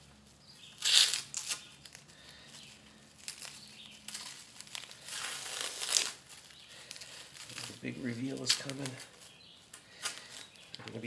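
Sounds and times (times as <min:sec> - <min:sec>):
tape crinkling: 0:00.0 - 0:11.0
tape rustling: 0:00.0 - 0:11.0
tape tearing off wood: 0:00.8 - 0:02.0, 0:04.1 - 0:06.3.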